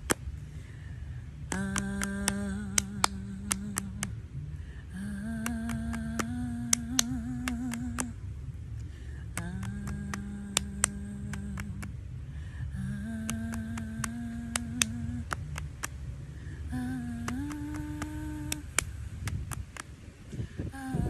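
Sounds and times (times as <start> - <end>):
low rumble: 0.0 - 21.0
sharp clicks: 1.5 - 4.1, 5.4 - 8.2, 9.3 - 11.9, 13.1 - 16.0, 16.8 - 19.9
woman humming: 1.5 - 4.1, 4.9 - 8.2, 9.2 - 12.0, 12.7 - 15.9, 16.7 - 19.6, 20.7 - 21.0.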